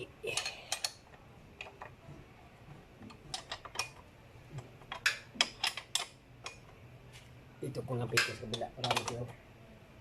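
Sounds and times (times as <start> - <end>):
wrench clicking on metal: 0.3 - 2.0, 4.8 - 6.7, 8.1 - 9.3.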